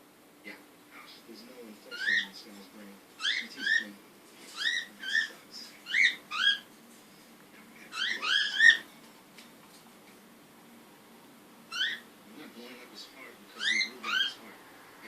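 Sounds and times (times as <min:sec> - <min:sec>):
baby cockatiel chirping: 0:01.9 - 0:02.3, 0:03.2 - 0:03.9, 0:04.5 - 0:06.7, 0:07.9 - 0:08.8, 0:11.7 - 0:12.1, 0:13.6 - 0:14.4.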